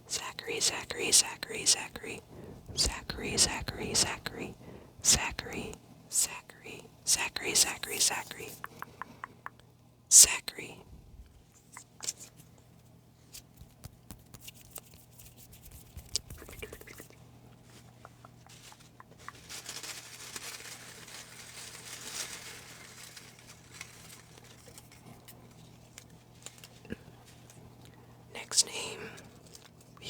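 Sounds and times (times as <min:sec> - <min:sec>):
paper rustling and crinkling: 0:18.6 - 0:27.4.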